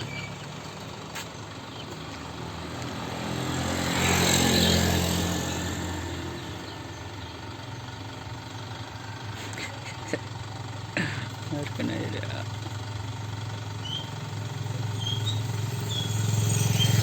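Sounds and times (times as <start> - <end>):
vehicle driving past: 0.0 - 7.6, 13.3 - 17.0
low engine hum: 0.0 - 17.0.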